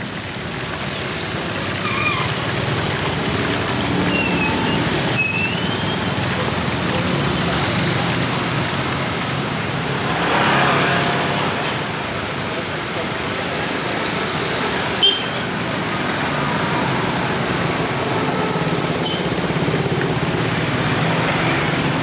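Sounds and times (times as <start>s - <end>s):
motor vehicles running: 0.0s - 22.0s
voices: 0.3s - 22.0s
high squeaks: 1.8s - 2.8s, 3.8s - 6.4s.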